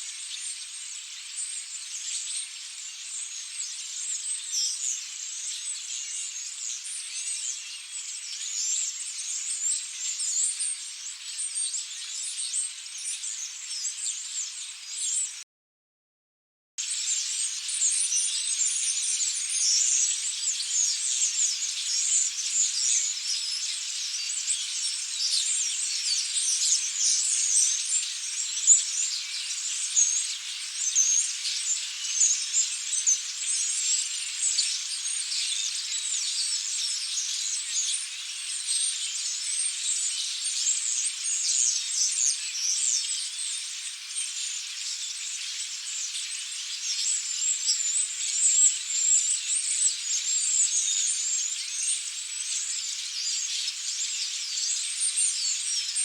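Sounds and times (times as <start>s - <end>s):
flock of starlings chattering: 16.8s - 56.0s.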